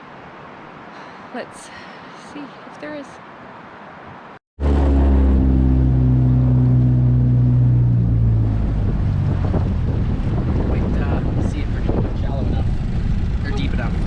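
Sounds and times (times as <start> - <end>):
boat outboard motor running: 4.6 - 11.4.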